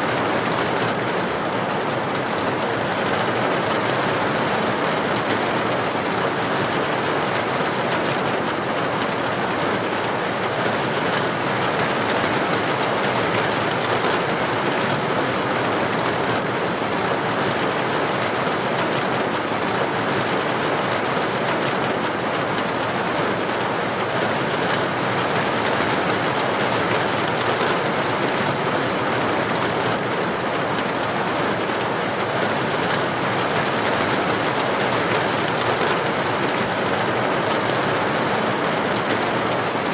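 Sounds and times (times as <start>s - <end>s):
heavy rain on a street: 0.0s - 39.9s.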